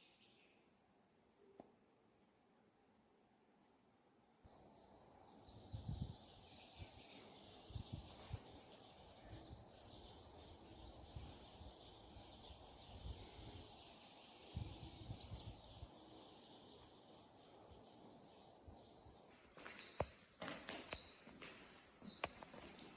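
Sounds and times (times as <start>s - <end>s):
steady high hiss: 0.0s - 22.9s.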